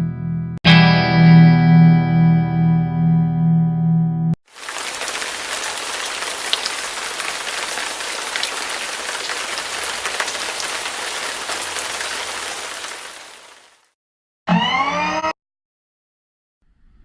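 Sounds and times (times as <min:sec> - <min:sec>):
steady rain falling: 0:04.4 - 0:13.9.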